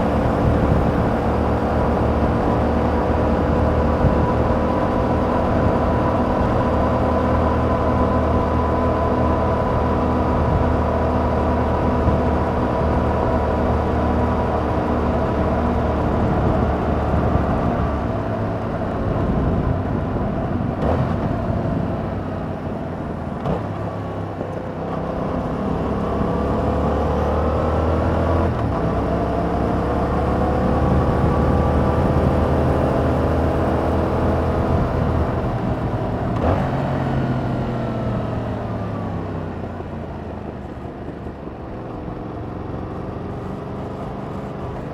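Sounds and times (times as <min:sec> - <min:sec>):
motorcycle engine revving: 0:20.6 - 0:39.8.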